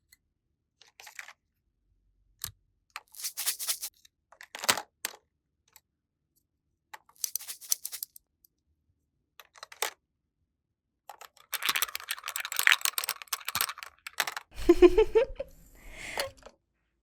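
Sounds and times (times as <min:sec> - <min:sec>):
small utensils clicking on toy dishes: 0:07.2 - 0:08.2, 0:11.3 - 0:14.5.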